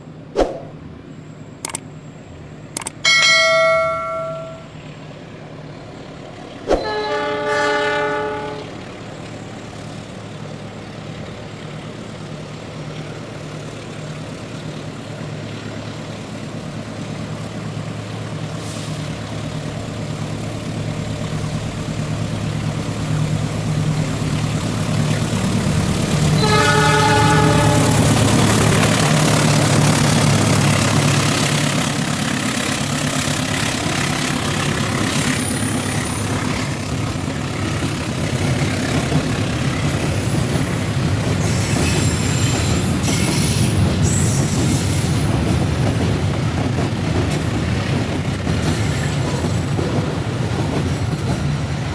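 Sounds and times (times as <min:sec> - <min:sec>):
rushing rail noise: 0:00.0 - 0:51.9
multi-note air horn: 0:06.8 - 0:08.8, 0:26.4 - 0:28.2
locomotive engine throbbing: 0:19.5 - 0:51.9.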